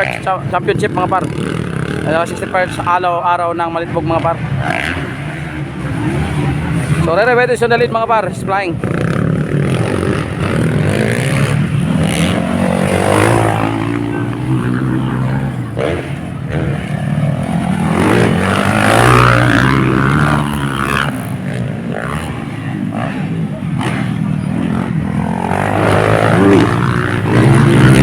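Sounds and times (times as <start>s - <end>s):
motocross bike engines revving: 0.0s - 28.0s.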